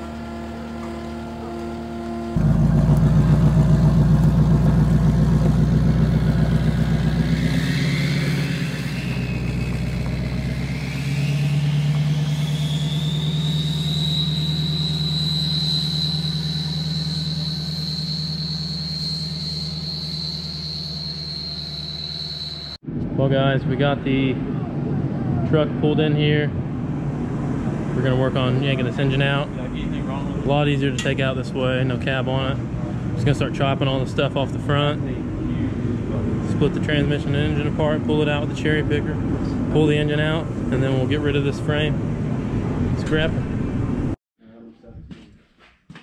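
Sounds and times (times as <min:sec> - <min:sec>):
diesel pickup engine pulling away: 0:00.0 - 0:22.7
high whine rising in pitch: 0:00.0 - 0:23.3.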